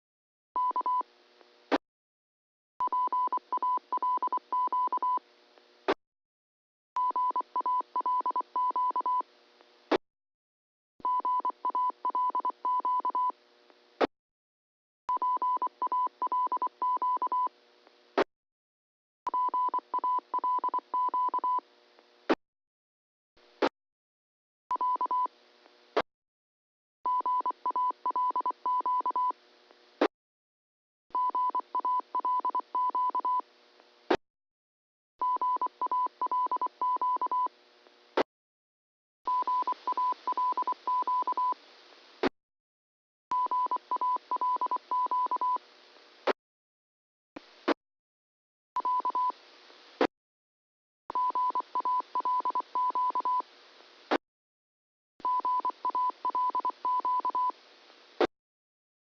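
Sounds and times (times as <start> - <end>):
morse code beeps: 0.6 - 1.0, 2.8 - 5.2, 7.0 - 9.2, 11.0 - 13.3, 15.1 - 17.5, 19.3 - 21.6, 24.7 - 25.3, 27.1 - 29.3, 31.2 - 33.4, 35.2 - 37.5, 39.3 - 41.6, 43.3 - 45.6, 48.8 - 49.3, 51.1 - 53.4, 55.2 - 57.5.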